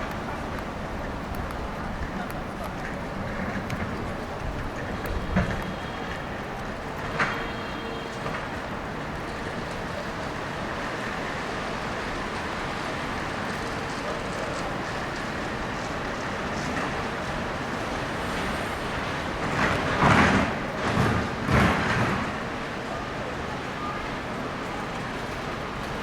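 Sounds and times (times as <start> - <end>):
traffic on wet roads: 0.0 - 26.0
vehicle passing close: 17.8 - 20.1.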